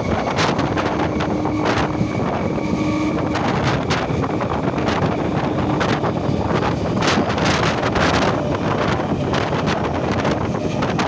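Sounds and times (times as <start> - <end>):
train wheels rumbling on track: 0.0 - 11.0
wind buffeting microphone: 0.0 - 11.0.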